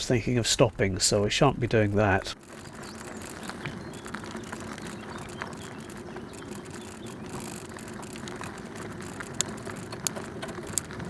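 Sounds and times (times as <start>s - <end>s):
bicycle tyre rumble: 0.0s - 11.0s
small clicks and rattles: 2.3s - 11.0s.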